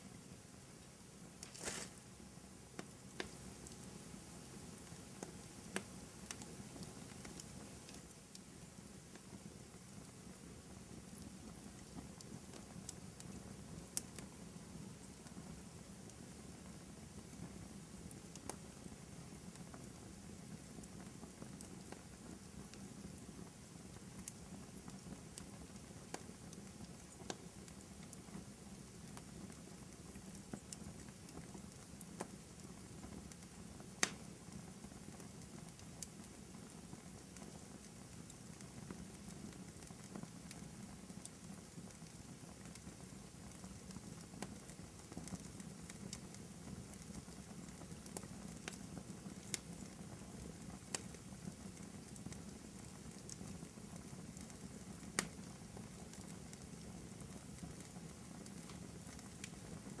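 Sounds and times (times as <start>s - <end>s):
logs crackling and popping: 0.8s - 60.0s
fire flames rushing: 1.3s - 2.0s.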